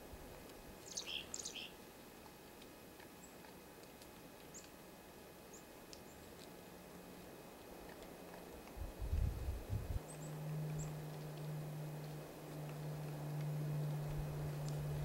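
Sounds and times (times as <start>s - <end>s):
small birds chirping: 0.8s - 1.8s, 4.5s - 4.8s, 10.0s - 12.9s.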